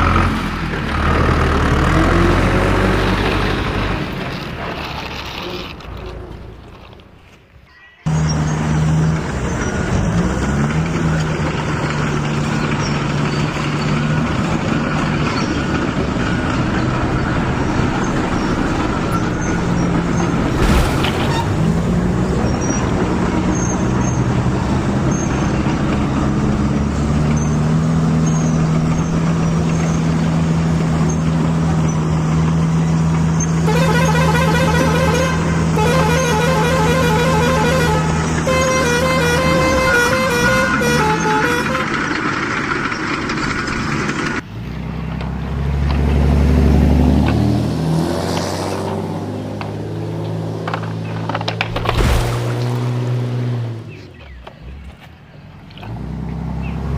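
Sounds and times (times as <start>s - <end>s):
vehicle engine droning: 0.0s - 56.9s
horn tooting in pulses: 33.4s - 42.6s.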